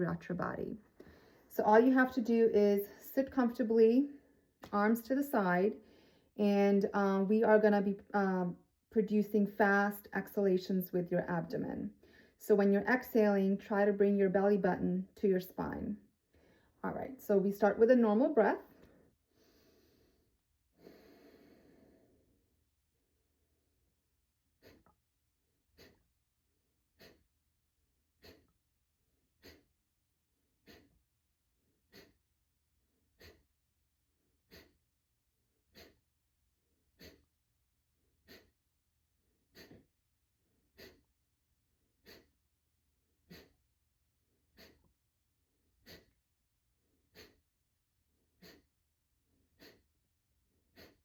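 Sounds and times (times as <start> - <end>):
forceful nasal exhalations: 18.8 - 22.2, 24.6 - 25.0, 25.6 - 26.2, 26.9 - 27.4, 28.1 - 28.6, 29.3 - 29.8, 30.6 - 31.1, 31.9 - 32.3, 33.1 - 33.6, 34.4 - 34.9, 35.6 - 36.1, 36.9 - 37.4, 38.2 - 38.7, 39.4 - 40.0, 40.7 - 41.2, 42.0 - 42.4, 43.2 - 43.7, 44.5 - 45.0, 45.8 - 46.3, 47.1 - 47.5, 48.3 - 48.8, 49.5 - 50.0, 50.6 - 51.0.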